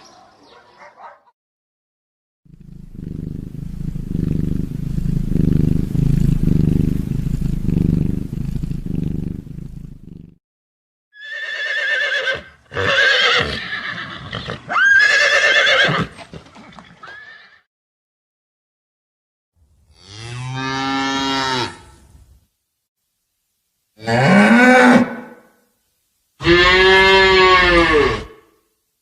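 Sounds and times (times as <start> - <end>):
low pulsing sound: 2.5 - 10.1
horse whinnying: 11.2 - 17.6, 26.4 - 28.4.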